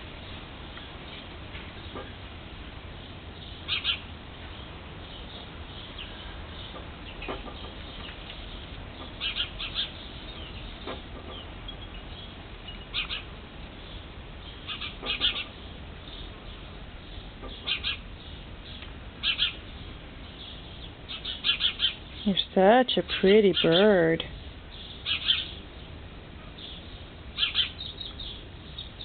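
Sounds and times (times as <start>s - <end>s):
steady low hum: 0.0s - 29.0s
high bird chirps: 3.4s - 4.0s, 5.1s - 24.0s, 24.7s - 25.6s, 26.6s - 29.0s.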